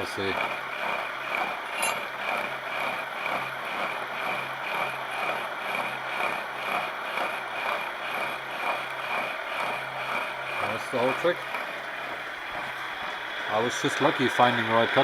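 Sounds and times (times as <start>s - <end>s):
cutter cutting metal: 0.0s - 3.0s
milling machine humming: 0.0s - 15.0s
high whine: 1.6s - 2.2s.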